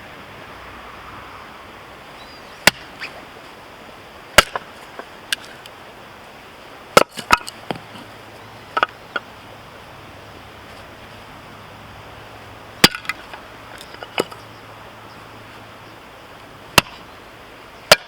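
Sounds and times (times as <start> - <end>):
hatchet chopping firewood: 2.6 - 3.1, 4.4 - 5.6, 7.0 - 8.0, 12.8 - 14.4, 16.7 - 17.0.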